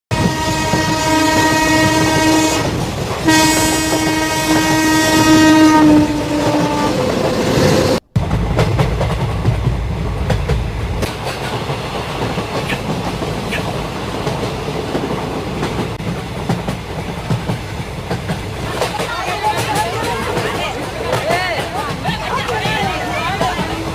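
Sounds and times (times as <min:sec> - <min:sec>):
train horn blasts: 0:00.1 - 0:07.2
train rumbling on rails: 0:00.1 - 0:23.9
wheels clattering over rail joints: 0:07.1 - 0:23.9.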